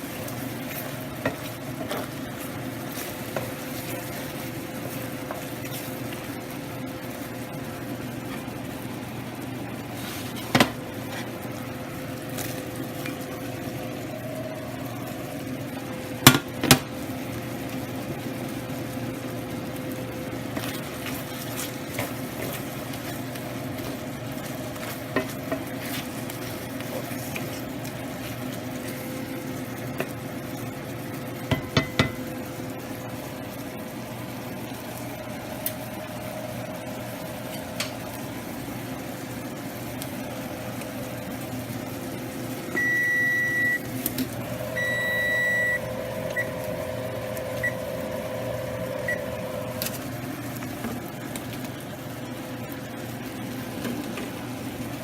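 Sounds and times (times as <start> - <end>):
kitchen fan hum: 0.0 - 55.0
pans clattering: 31.5 - 32.3
appliance beeping: 31.5 - 32.4, 42.7 - 50.8.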